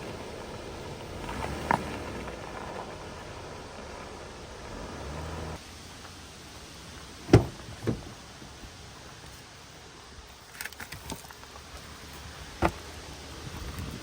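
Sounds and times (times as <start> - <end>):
low steady rumble: 0.0 - 10.3.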